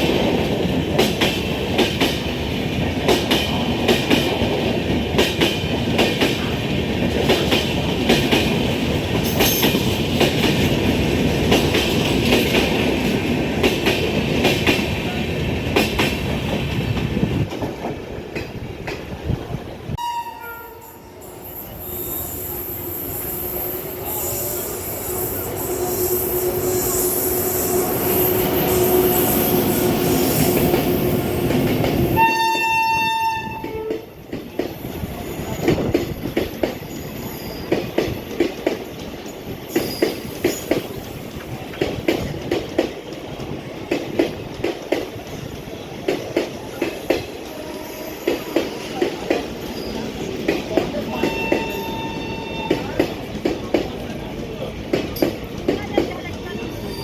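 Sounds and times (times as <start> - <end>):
train running noise: 0.0 - 57.0
train horn blast: 20.0 - 21.2, 32.2 - 34.1, 47.5 - 48.9, 51.1 - 53.0
wheels clacking over rail joints: 48.2 - 57.0.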